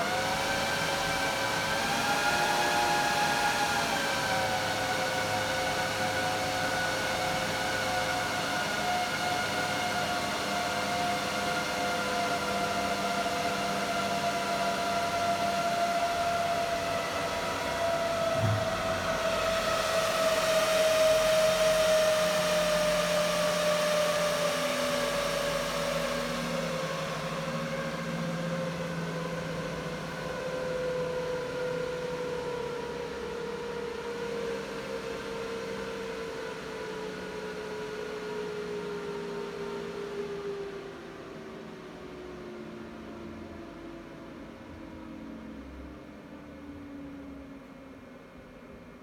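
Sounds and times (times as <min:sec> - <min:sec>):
server cooling fans whining: 0:13.5 - 0:49.0.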